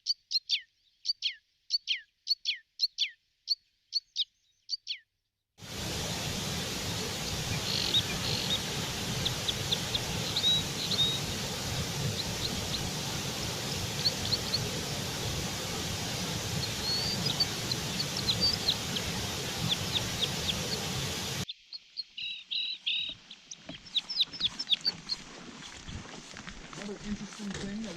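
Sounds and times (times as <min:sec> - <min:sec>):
outdoor background hiss: 0:05.6 - 0:22.3
birds chirping: 0:05.6 - 0:26.1.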